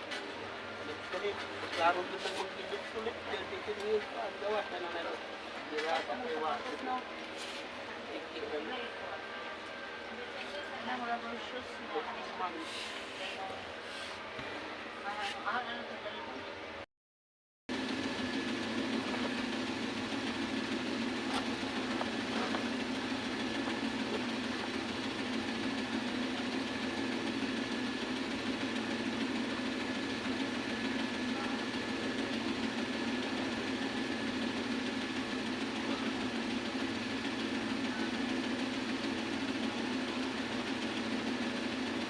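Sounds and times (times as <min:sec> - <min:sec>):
motor humming: 0:17.7 - 0:42.0.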